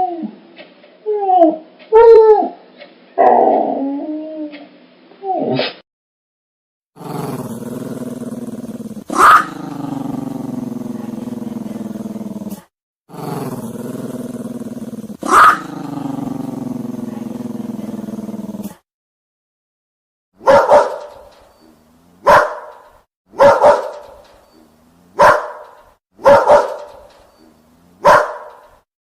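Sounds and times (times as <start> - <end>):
dog growling: 7.0 - 18.8
dog barking: 9.1 - 9.5, 15.2 - 15.6, 20.4 - 21.3, 22.2 - 24.2, 25.2 - 27.0, 28.0 - 28.6.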